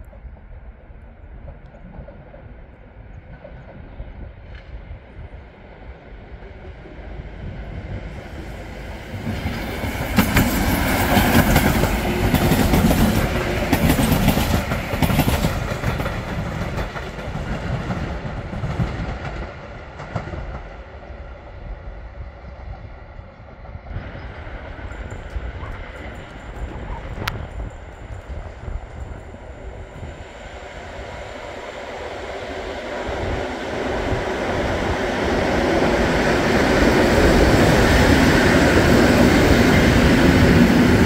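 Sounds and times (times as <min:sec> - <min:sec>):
train passing: 0:00.0 - 0:41.0
train wheels clattering: 0:09.2 - 0:20.8.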